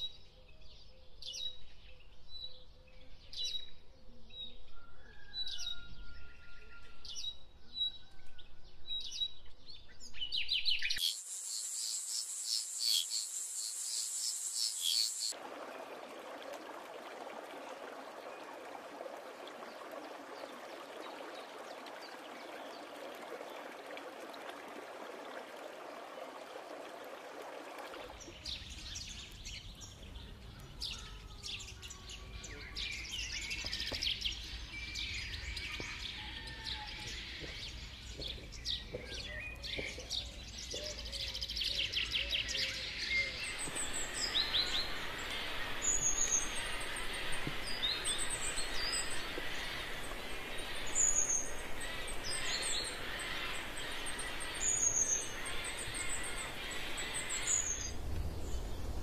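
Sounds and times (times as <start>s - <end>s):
birds chirping: 10.8s - 15.4s, 37.0s - 58.9s
steady outdoor hiss: 10.9s - 36.4s, 37.1s - 59.0s.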